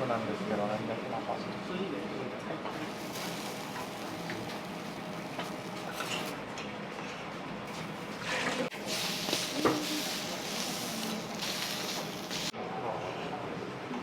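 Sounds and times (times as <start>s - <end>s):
sizzling on a griddle: 2.7s - 6.4s, 7.7s - 12.5s.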